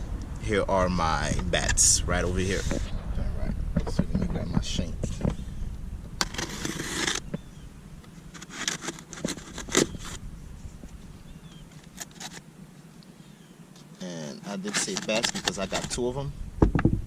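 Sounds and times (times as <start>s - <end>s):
knife cutting cardboard box: 6.2s - 7.2s, 8.4s - 10.2s.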